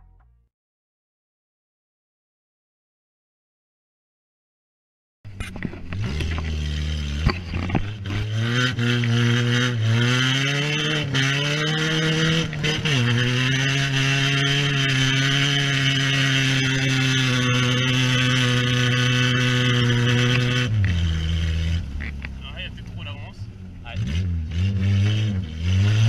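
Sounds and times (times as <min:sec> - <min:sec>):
car engine revving through gears: 0:05.3 - 0:26.0.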